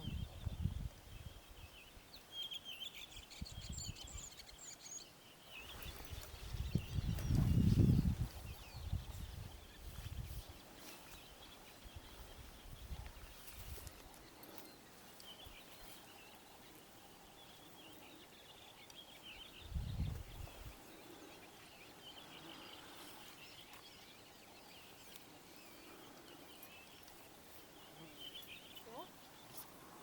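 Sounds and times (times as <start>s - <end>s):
distant birds chirping: 1.3s - 30.0s
low rumble on microphone: 6.4s - 10.5s.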